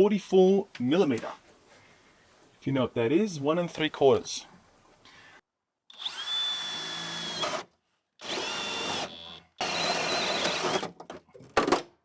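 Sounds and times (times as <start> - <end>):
power drill whining: 5.9 - 10.9.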